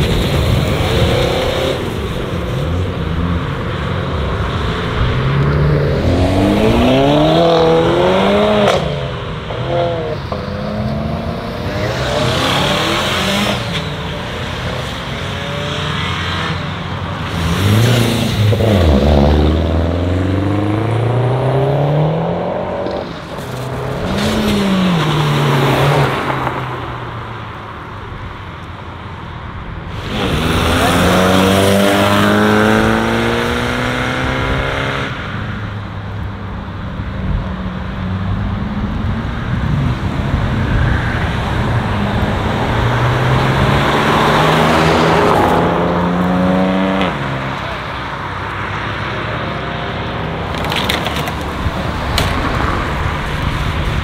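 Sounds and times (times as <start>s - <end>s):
car engines revving and accelerating: 0.0s - 54.0s.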